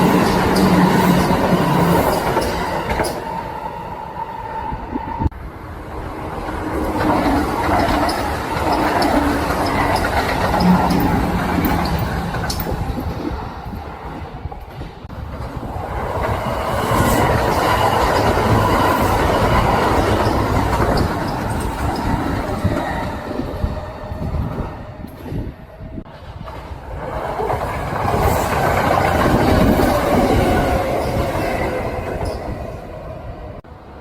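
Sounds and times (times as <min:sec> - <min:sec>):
electric train passing: 0:00.0 - 0:34.0
wheels clattering over rail joints: 0:06.3 - 0:13.4, 0:14.6 - 0:32.6.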